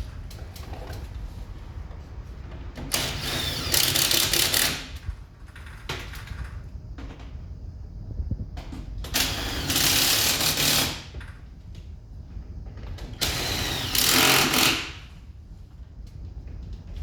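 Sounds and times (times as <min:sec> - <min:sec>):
clicks and rattles of hard parts: 0:02.4 - 0:07.3
steady low rumble: 0:06.4 - 0:09.6.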